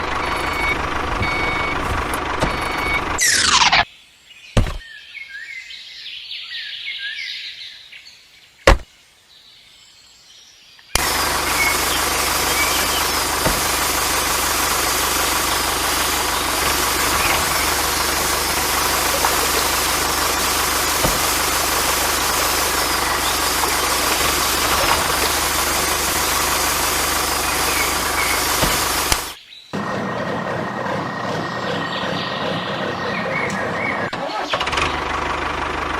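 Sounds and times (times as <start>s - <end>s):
engine running: 0.0s - 3.8s, 11.0s - 35.9s
sharp clicks: 11.0s - 29.4s.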